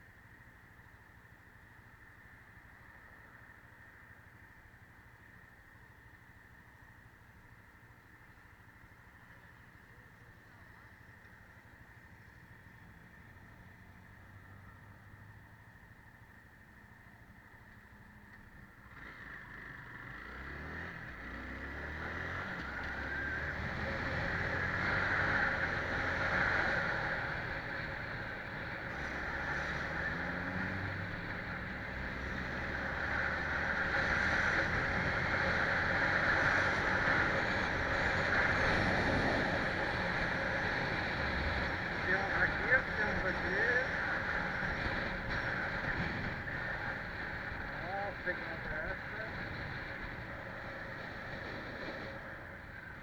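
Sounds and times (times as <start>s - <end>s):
wind and road noise: 0.0s - 53.0s
vehicle engine accelerating: 18.3s - 53.0s.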